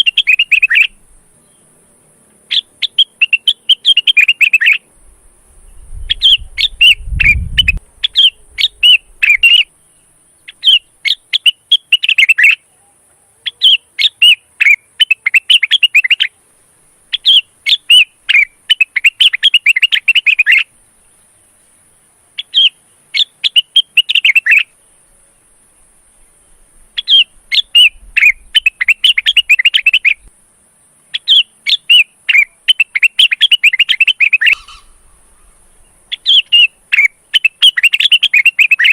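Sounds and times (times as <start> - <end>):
bird chattering chirps: 0.0 - 1.6, 2.5 - 4.9, 5.7 - 9.8, 10.4 - 12.7, 13.4 - 16.4, 17.1 - 20.7, 22.4 - 24.8, 27.0 - 30.3, 31.1 - 38.9
steady high hiss: 0.0 - 38.9.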